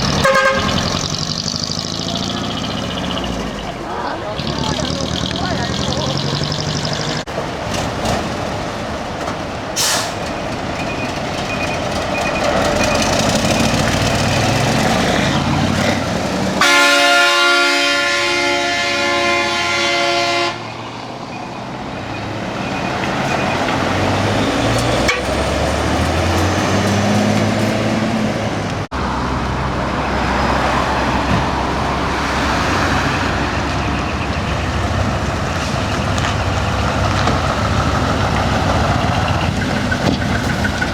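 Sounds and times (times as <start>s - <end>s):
truck horn blast: 0.0s - 1.1s, 15.0s - 20.8s, 24.9s - 25.6s
diesel trucks driving past: 0.0s - 40.9s.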